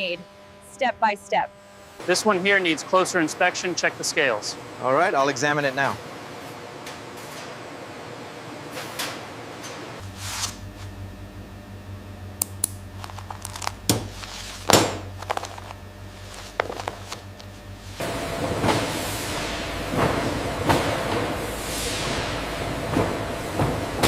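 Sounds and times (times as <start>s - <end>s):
steady low hum: 0.0s - 8.7s, 9.8s - 24.0s.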